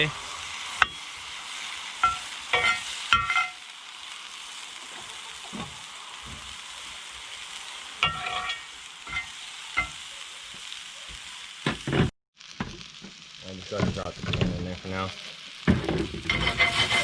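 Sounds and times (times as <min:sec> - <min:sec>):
food sizzling in a frying pan: 0:00.0 - 0:17.0
utensil clinking on cookware: 0:02.0 - 0:03.6, 0:08.0 - 0:10.0.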